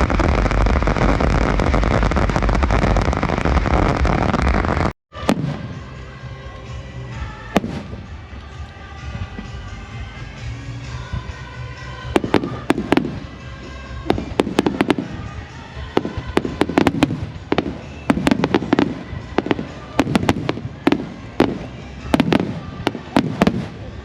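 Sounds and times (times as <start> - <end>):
fireworks bangs with rumbling echo: 0.0 - 6.0, 7.5 - 8.2, 12.1 - 24.0.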